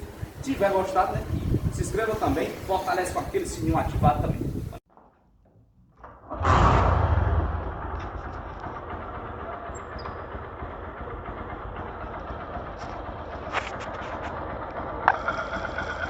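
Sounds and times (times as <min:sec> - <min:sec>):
motorcycle engine idling: 0:07.7 - 0:16.0.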